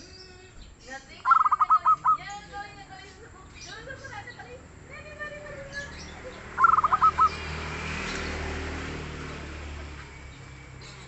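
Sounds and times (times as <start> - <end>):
dove cooing: 1.2 - 2.5, 6.3 - 7.4.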